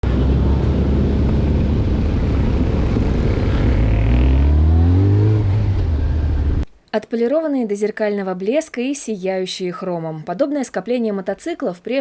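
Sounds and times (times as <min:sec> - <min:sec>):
motorcycle engine revving: 0:00.0 - 0:06.6
motorcycle engines rumbling: 0:00.0 - 0:06.6.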